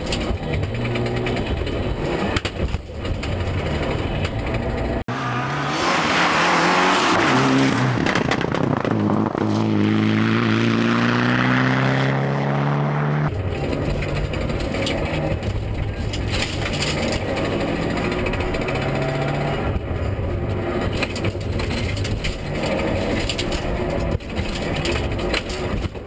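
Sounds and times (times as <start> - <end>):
car engine accelerating hard: 3.4 - 16.0, 16.7 - 21.4.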